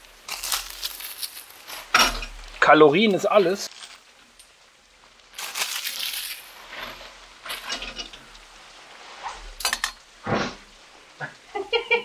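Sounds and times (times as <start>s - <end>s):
metal cooking gear clinking: 5.4s - 8.3s.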